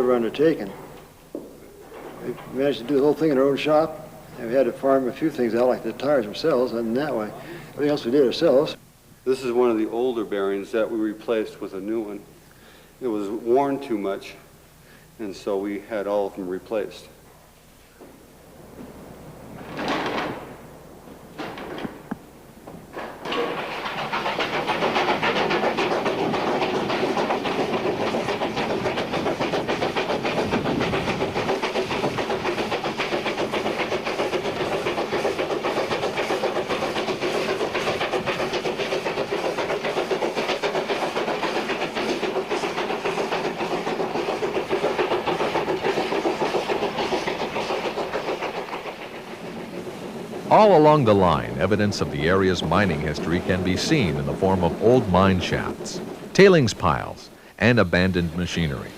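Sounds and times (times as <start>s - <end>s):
steam train running on track: 23.0s - 58.9s.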